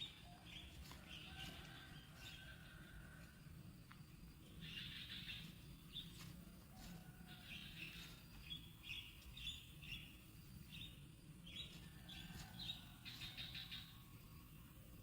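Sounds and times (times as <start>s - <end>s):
bird chirping: 0.0s - 1.4s, 4.5s - 6.2s, 7.3s - 14.3s.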